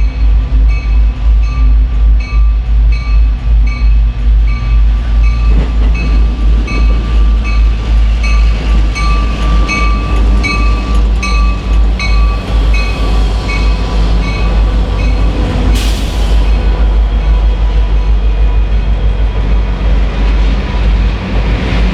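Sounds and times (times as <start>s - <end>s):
crossing bell ringing: 0.0s - 15.8s
train rumbling past: 0.0s - 21.9s
burst of hiss: 15.8s - 16.8s.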